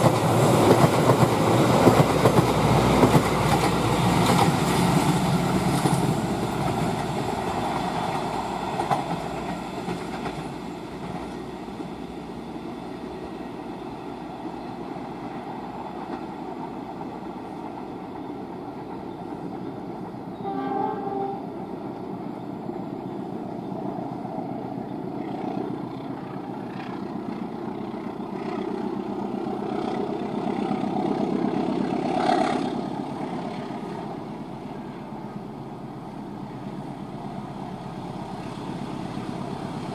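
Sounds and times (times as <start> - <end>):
train running on rails: 0.0 - 39.9
train horn blast: 20.3 - 21.5.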